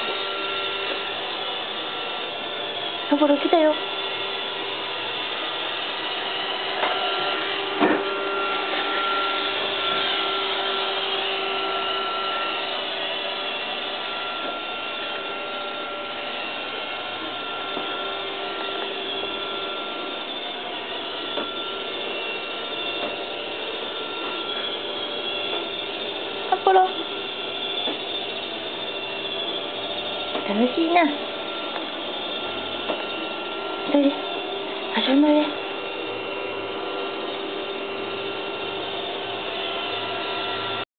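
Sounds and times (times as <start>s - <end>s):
robot vacuum cleaner whirring: 0.0s - 40.9s.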